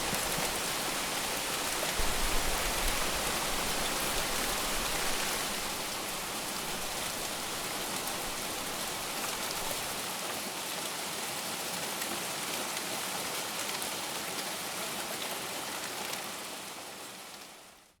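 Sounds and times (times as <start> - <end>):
heavy rain falling: 0.0 - 10.1.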